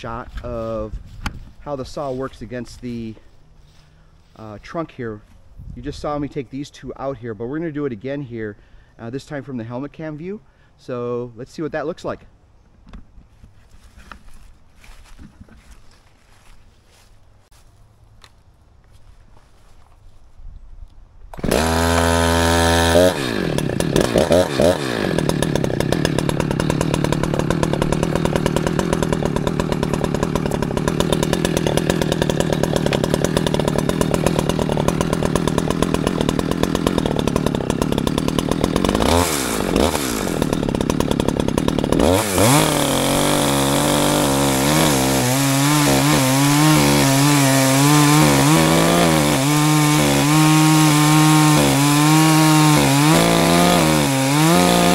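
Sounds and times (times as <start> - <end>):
chainsaw revving and cutting: 21.3 - 54.9.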